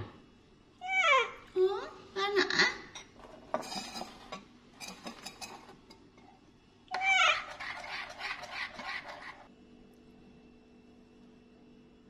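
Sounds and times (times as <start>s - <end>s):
spoon clinking ceramic bowl: 3.0s - 6.3s.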